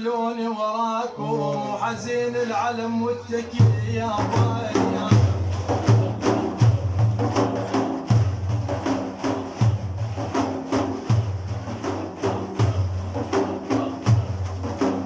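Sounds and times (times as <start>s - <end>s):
hand percussion rhythm: 3.4s - 15.0s.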